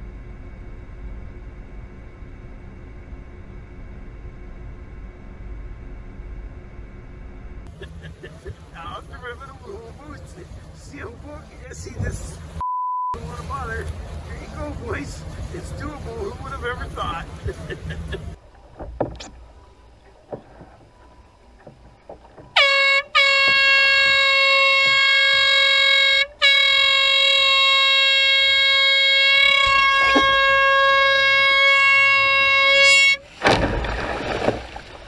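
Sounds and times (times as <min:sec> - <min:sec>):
air horn blasts: 0:07.8 - 0:12.6, 0:22.6 - 0:33.3.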